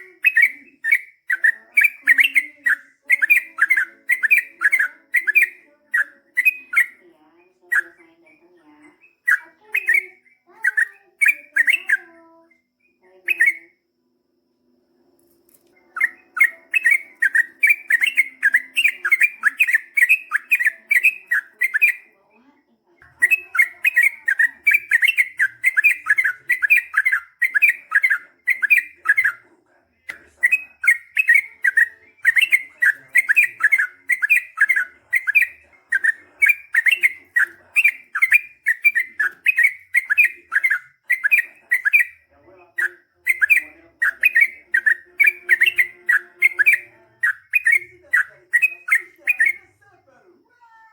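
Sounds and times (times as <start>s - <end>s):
bulbul singing rapid notes: 16.0s - 22.0s, 23.0s - 29.4s, 30.1s - 49.6s.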